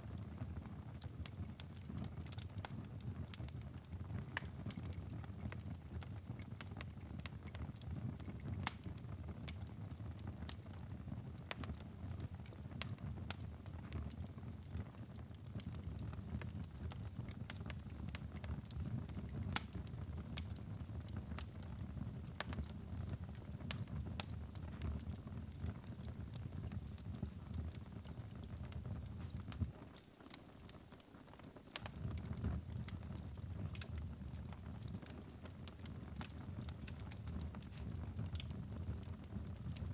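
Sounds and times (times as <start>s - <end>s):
fire crackles and pops: 0.0s - 39.9s
low rumble of flames: 0.2s - 29.8s, 31.8s - 39.9s.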